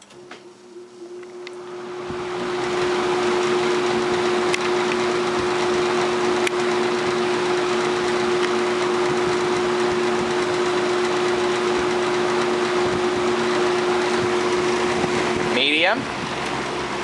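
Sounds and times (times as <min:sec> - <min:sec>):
fan motor hum: 0:00.0 - 0:17.0
box fan air rush: 0:00.5 - 0:17.0
fan clicking chatter: 0:01.4 - 0:17.0.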